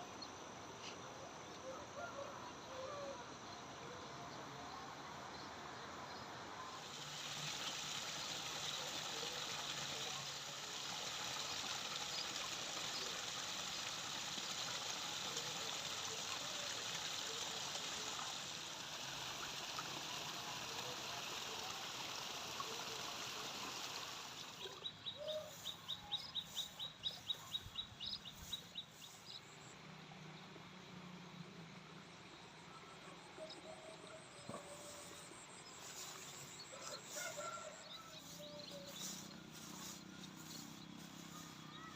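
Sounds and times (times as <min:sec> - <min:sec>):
water flowing in a stream: 0:03.2 - 0:41.9.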